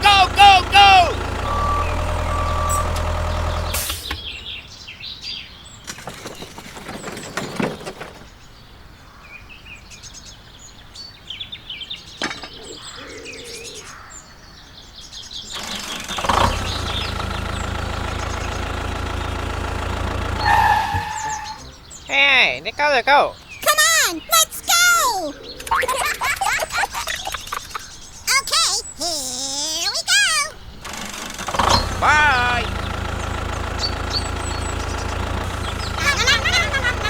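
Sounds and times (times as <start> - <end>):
engine running: 0.0 - 4.7, 15.5 - 21.8, 30.8 - 37.0
small birds chirping: 0.0 - 37.0.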